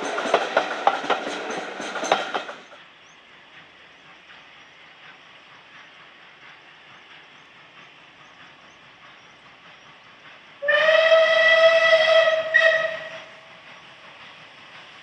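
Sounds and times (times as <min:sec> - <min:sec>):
train running: 0:00.0 - 0:15.0
steam locomotive whistle: 0:10.6 - 0:13.6.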